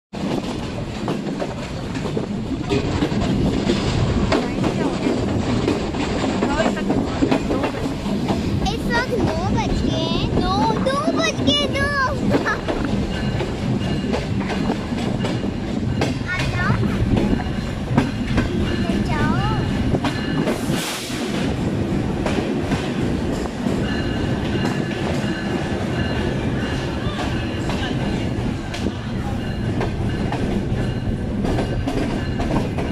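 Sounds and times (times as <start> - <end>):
passenger train rumbling: 0.1 - 32.9
wheels knocking: 0.2 - 32.9
wheels squealing on rails: 22.5 - 32.9.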